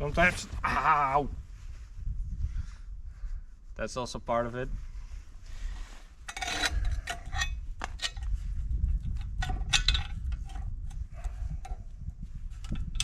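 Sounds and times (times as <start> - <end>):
metal tools clinking: 6.3 - 8.3.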